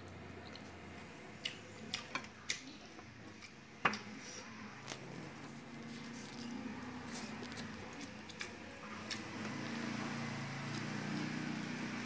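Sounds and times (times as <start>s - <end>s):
man chewing food: 0.0s - 4.2s, 4.8s - 9.8s.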